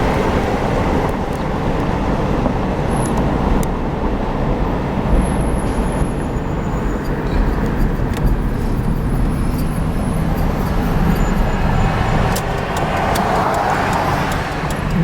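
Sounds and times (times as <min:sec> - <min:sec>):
slow traffic rumble: 0:00.0 - 0:15.0
faint clicks: 0:12.3 - 0:15.0.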